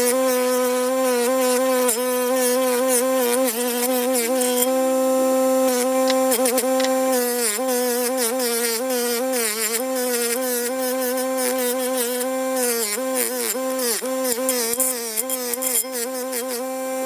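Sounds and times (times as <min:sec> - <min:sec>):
power tool motor whining: 0:04.9 - 0:07.2
scratchy grinding on metal: 0:05.8 - 0:07.2.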